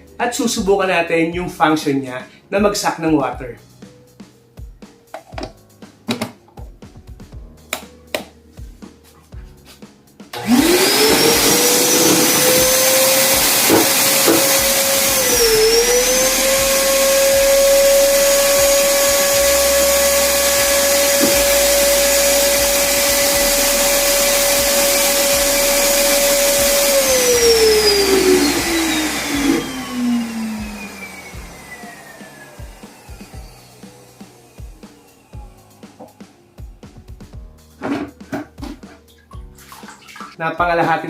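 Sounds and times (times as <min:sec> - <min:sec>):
wet vacuum cleaner whining: 0:10.4 - 0:36.4.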